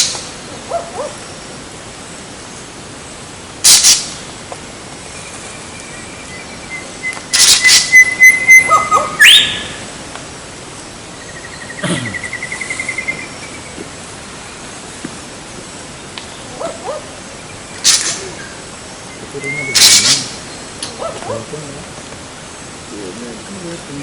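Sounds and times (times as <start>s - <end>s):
harsh bird calls: 5.0s - 10.0s, 10.8s - 14.7s, 15.9s - 21.5s
fast trilled bird call: 5.6s - 9.9s, 17.7s - 20.7s.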